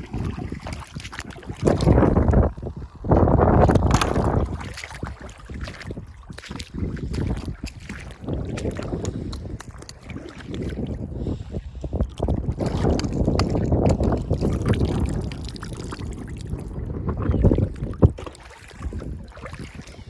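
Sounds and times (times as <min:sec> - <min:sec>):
water sloshing and splashing: 0:00.0 - 0:20.0
oysters clicking and knocking: 0:03.3 - 0:05.0, 0:08.5 - 0:10.1, 0:11.9 - 0:15.1.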